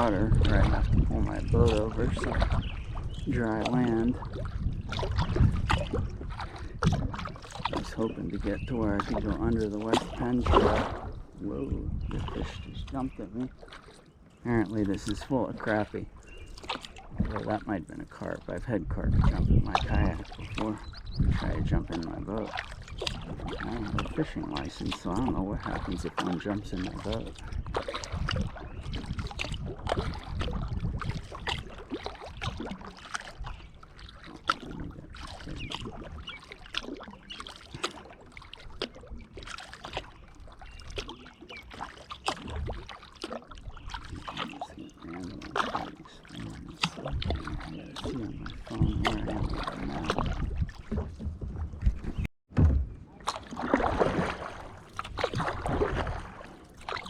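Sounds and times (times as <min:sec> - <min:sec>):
paddle splashing in water: 0:00.0 - 0:57.0
paddle knocking against boat: 0:40.8 - 0:57.0.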